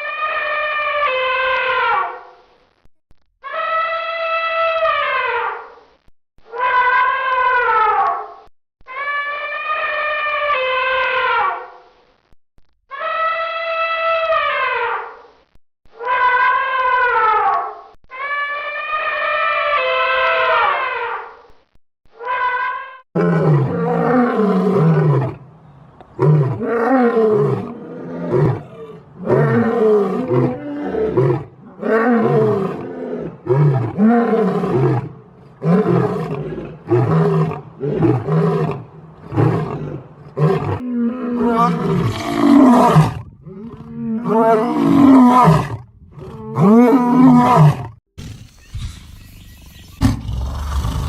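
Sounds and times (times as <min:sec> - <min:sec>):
big cat roaring: 0:23.2 - 0:25.4, 0:26.2 - 0:48.0, 0:50.0 - 0:51.0.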